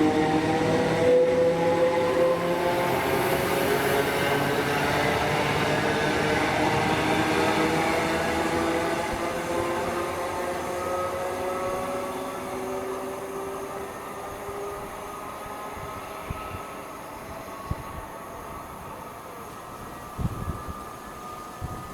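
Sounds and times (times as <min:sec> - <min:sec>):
train whine and rumble: 0:00.0 - 0:21.9.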